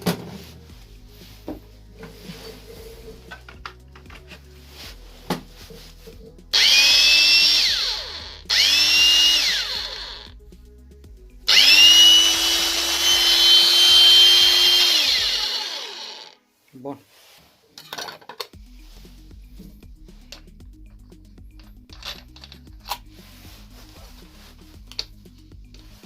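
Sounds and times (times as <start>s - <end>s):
angle grinder whine: 6.6s - 10.3s, 11.5s - 16.4s.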